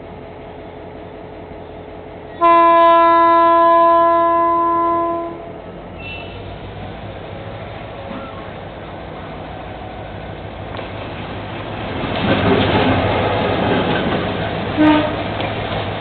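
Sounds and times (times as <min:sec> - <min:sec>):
train rumbling: 0:00.0 - 0:16.0
locomotive horn blast: 0:02.4 - 0:06.4, 0:14.8 - 0:15.2.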